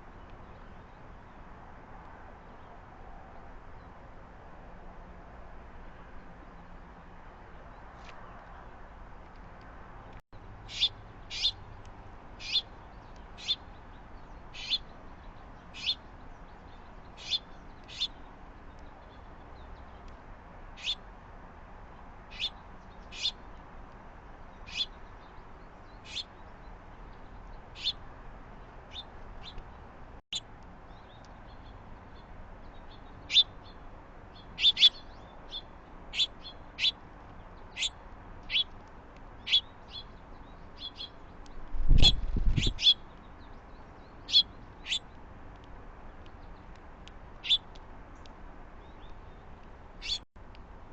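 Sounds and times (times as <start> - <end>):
small birds chirping: 10.6 - 21.1, 21.9 - 30.0, 30.6 - 50.2.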